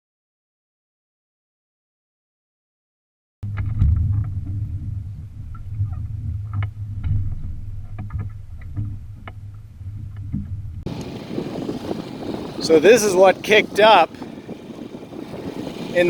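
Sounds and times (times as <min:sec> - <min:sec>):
low rumble of wind: 0:03.4 - 0:16.0
choppy water: 0:03.6 - 0:16.0.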